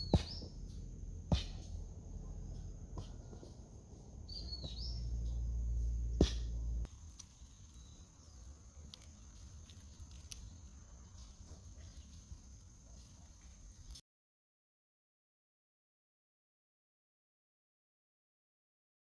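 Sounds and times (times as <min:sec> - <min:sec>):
low rumble: 0:00.0 - 0:06.9
bird chirp: 0:00.0 - 0:09.4.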